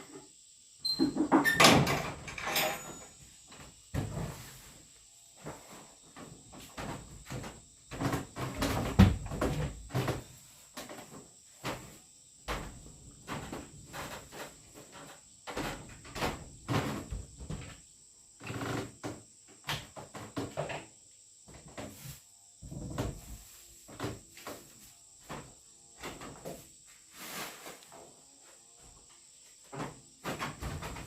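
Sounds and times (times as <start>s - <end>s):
high insect drone: 0.0s - 31.0s
objects knocking and clattering: 1.0s - 3.2s.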